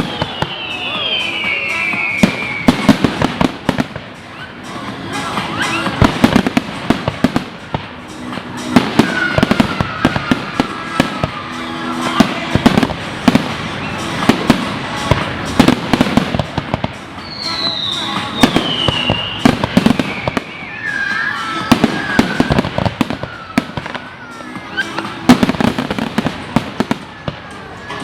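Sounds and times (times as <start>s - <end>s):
falling firework whistle: 0.0s - 4.6s, 5.4s - 6.6s, 8.7s - 14.6s, 17.2s - 26.1s
background music: 0.0s - 28.0s
fireworks bangs and crackling: 0.0s - 28.0s.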